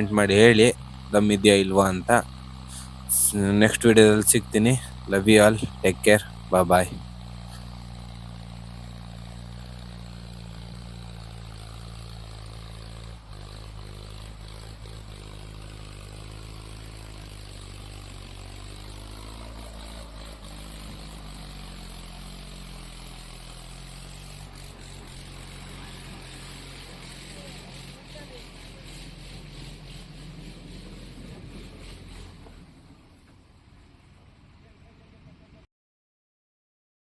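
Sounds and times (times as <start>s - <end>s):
tractor diesel engine idling: 0.0s - 35.6s.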